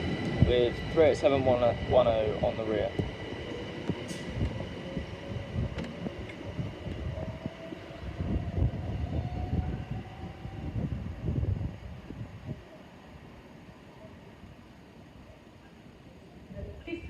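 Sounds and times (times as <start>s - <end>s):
wheels rumbling on track: 0.0s - 12.6s.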